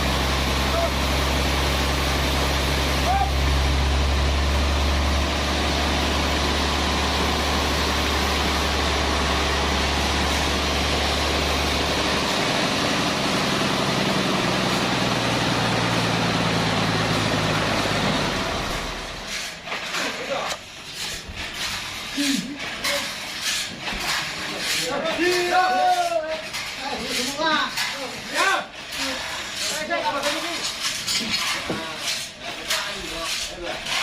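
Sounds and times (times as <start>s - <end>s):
sawmill machinery running: 0.0s - 25.7s.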